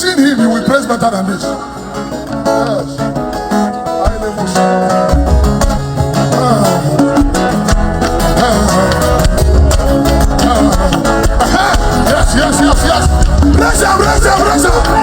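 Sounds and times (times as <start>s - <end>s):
guitar: 0.0s - 15.0s
voices singing: 0.0s - 15.0s
bass line: 2.4s - 15.0s
drum hits: 5.0s - 15.0s.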